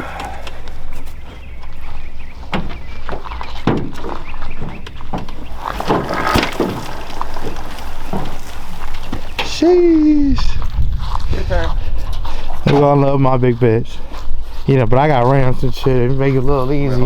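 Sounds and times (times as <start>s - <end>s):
clunks and knocks of pushed atv: 0.4s - 9.6s.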